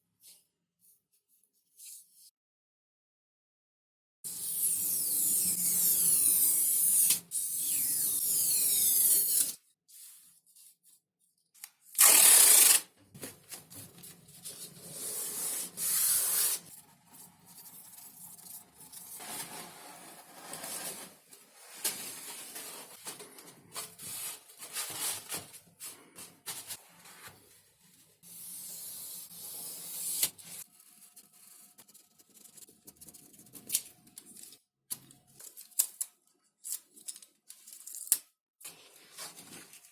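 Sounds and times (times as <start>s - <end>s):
scrapes and rustles on foam: 14.2s - 28.0s.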